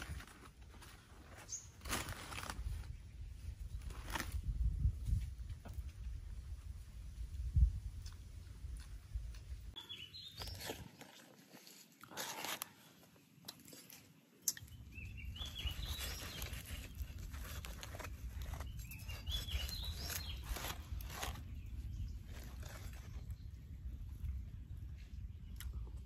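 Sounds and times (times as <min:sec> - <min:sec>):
birds chirping: 0:09.8 - 0:11.1, 0:12.3 - 0:24.0.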